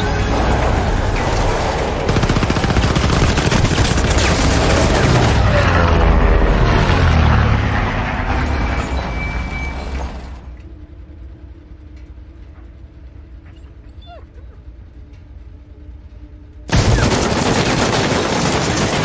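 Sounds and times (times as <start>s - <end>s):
rapid machine-gun fire: 1.4s - 5.6s, 16.7s - 19.0s.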